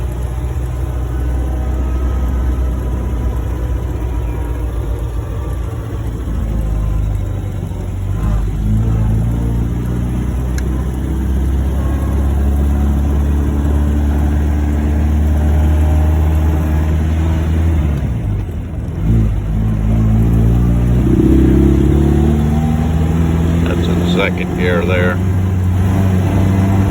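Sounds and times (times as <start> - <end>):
car engine accelerating: 0.0 - 26.9.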